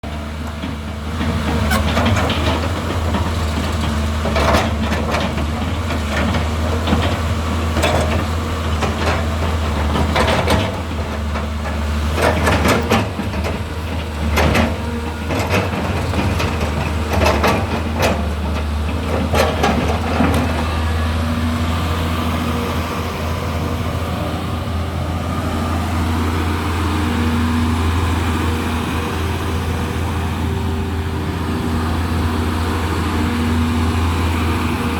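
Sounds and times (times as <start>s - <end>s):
excavator diesel engine droning: 0.0s - 34.9s
knocks and clatter: 0.1s - 20.7s.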